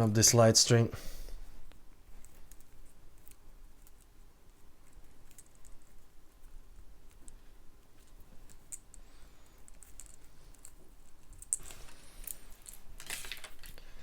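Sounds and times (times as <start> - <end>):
plastic packaging crinkling: 11.5 - 14.0.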